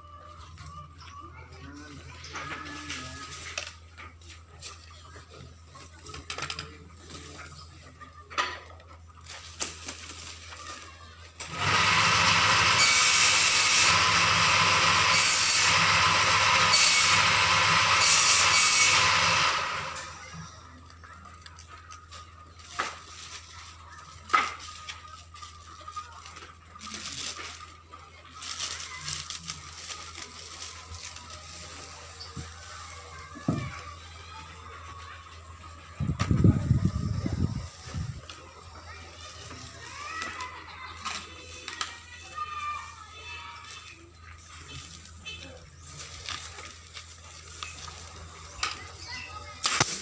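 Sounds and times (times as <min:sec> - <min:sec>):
electric power tool running: 0:11.4 - 0:20.4.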